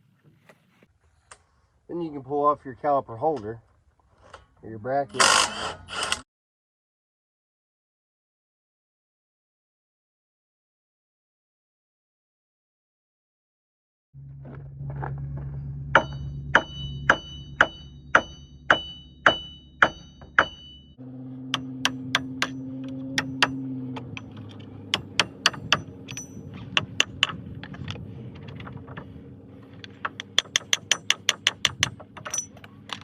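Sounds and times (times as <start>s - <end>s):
steady low hum: 14.2s - 33.0s
hammer blows on metal: 16.0s - 20.9s.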